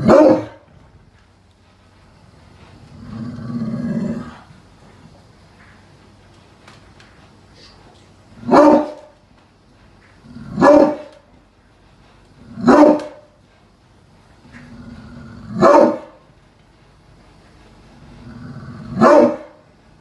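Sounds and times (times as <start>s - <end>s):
dog barking deeply: 0.0s - 0.6s, 8.4s - 9.1s, 10.5s - 11.2s, 12.6s - 13.3s, 15.5s - 16.2s, 18.9s - 19.6s.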